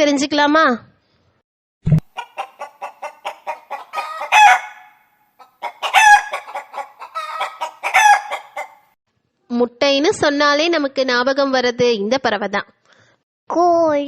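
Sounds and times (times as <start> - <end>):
hen cackling: 2.1 - 8.9.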